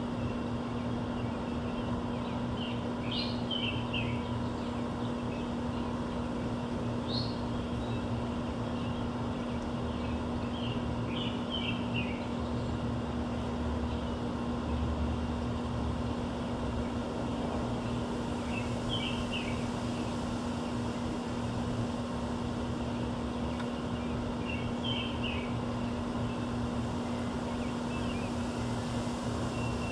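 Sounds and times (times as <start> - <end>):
low rumble with hum: 0.0 - 29.9
small birds chirping: 0.2 - 12.8, 17.8 - 20.1, 23.4 - 28.7.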